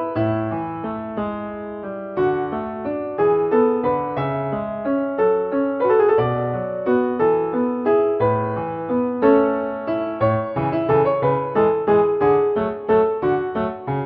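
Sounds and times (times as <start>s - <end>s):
piano waltz: 0.0s - 14.0s.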